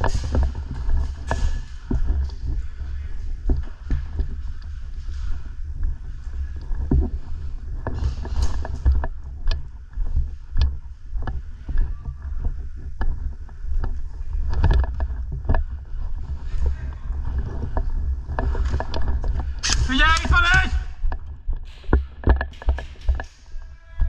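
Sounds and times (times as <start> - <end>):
wind and movement rumble on microphone: 0.0 - 24.0
sharp clicks and knocks: 18.4 - 23.8.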